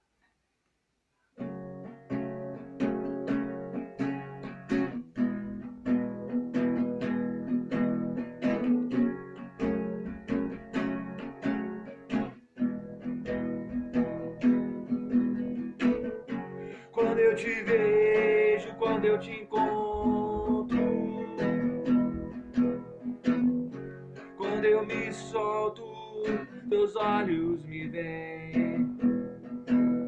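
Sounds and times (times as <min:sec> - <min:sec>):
acoustic guitar strumming: 0:01.4 - 0:30.0.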